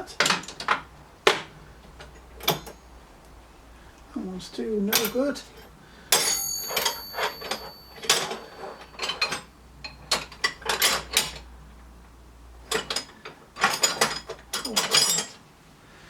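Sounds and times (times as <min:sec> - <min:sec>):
steel spanners clinking: 0:02.0 - 0:03.4, 0:04.9 - 0:11.5, 0:12.7 - 0:15.4.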